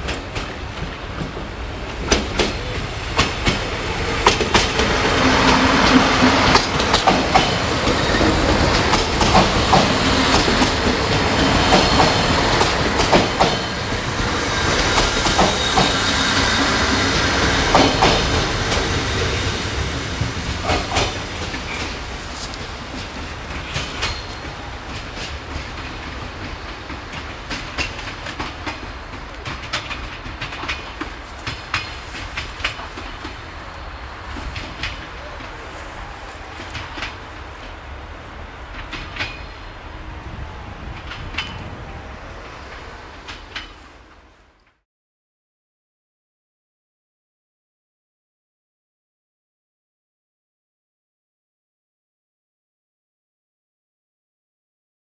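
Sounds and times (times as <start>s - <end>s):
train wheels clacking over rail joints: 0.0s - 33.6s, 34.2s - 37.8s, 38.6s - 39.6s
train engines running: 0.0s - 44.6s
high wheel squeal: 13.6s - 17.6s, 23.6s - 24.5s.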